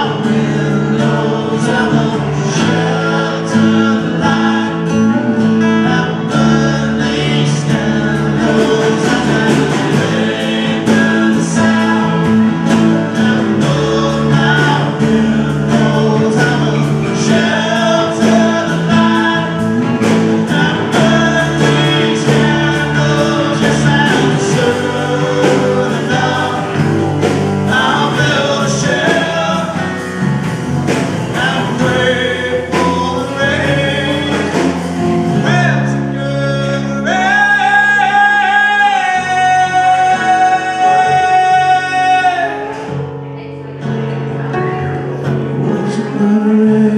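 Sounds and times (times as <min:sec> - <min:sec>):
live band playing: 0:00.0 - 0:46.9
person singing: 0:00.0 - 0:46.9.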